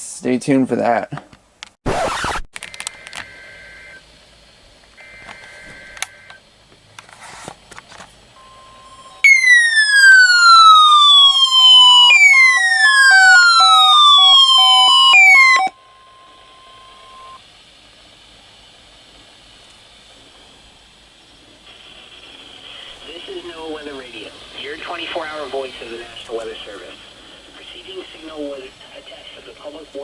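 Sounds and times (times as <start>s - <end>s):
pulsing beep: 8.4s - 17.4s
steady high tone: 8.4s - 17.4s
falling siren sweep: 8.7s - 17.4s
warbling data bursts: 9.2s - 17.4s.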